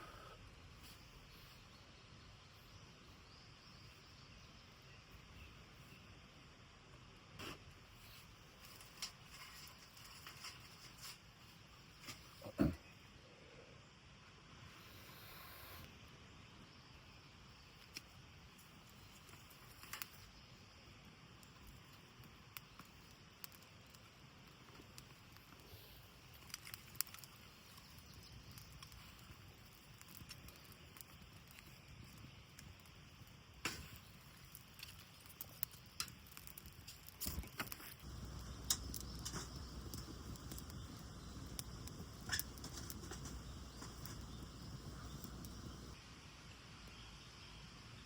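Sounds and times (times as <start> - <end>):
flint and steel clicks: 21.4 - 46.0.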